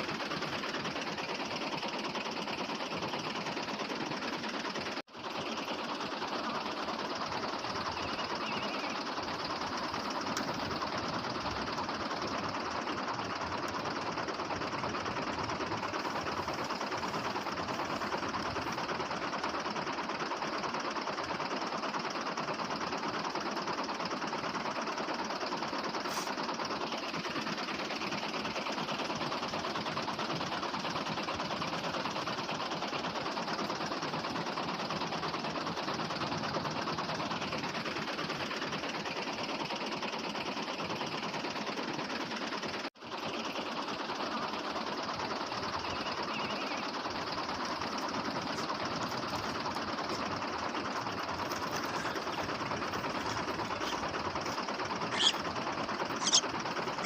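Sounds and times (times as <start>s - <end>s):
small motor whirring: 48.1s - 57.0s.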